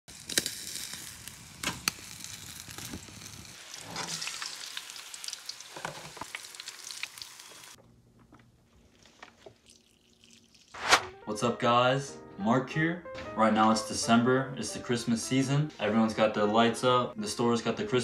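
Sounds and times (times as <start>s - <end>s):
fish sizzling in hot oil: 0.1s - 7.8s.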